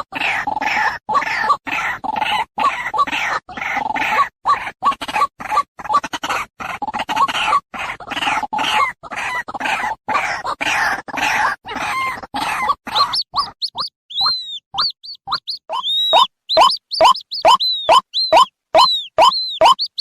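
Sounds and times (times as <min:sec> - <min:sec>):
bird chick calling: 0:11.7 - 0:20.0.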